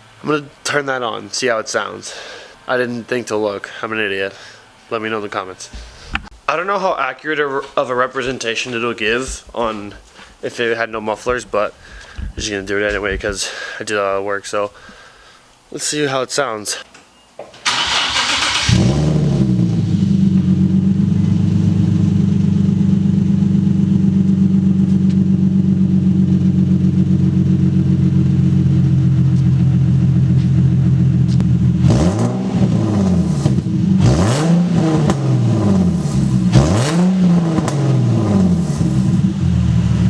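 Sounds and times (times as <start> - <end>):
car engine idling and revving: 17.8 - 40.0.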